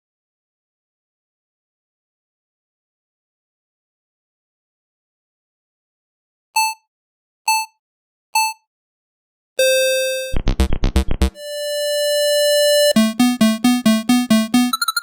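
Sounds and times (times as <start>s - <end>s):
synthesized square-wave tones: 9.6s - 15.0s.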